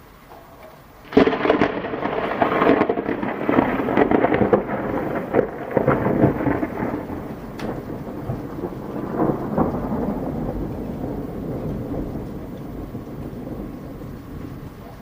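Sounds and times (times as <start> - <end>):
thunder crack and rumble: 1.0 - 15.0.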